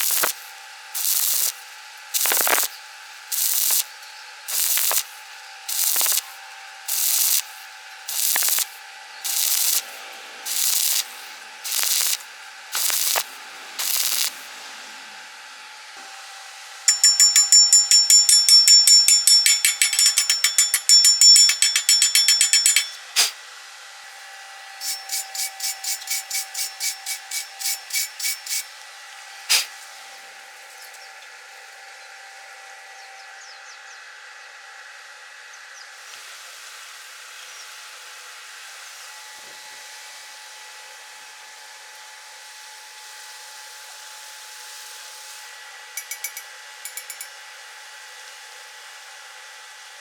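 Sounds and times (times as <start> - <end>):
hand tool striking steel: 0.0 - 1.6, 2.2 - 3.9, 4.5 - 12.2, 12.8 - 14.5, 16.9 - 23.4, 24.8 - 28.7, 46.0 - 47.4
sharp click: 16.9 - 23.4.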